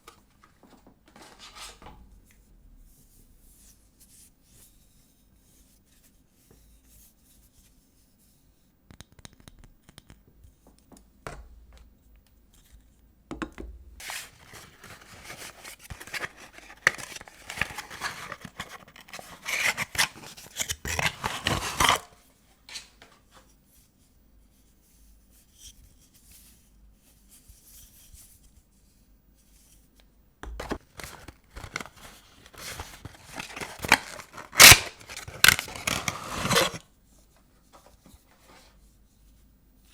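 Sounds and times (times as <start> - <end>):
paper wrapping crackling and tearing: 14.0 - 22.2, 30.6 - 36.8.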